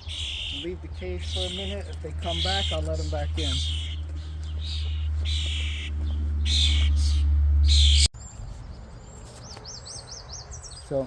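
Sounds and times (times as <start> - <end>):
young songbirds raspy calls: 0.0 - 11.0
loud low steady rumble: 4.2 - 8.1.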